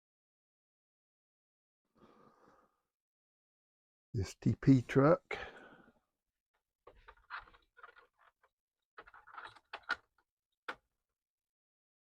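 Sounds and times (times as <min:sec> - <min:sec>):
handling clicks and rustles: 0:06.9 - 0:10.9.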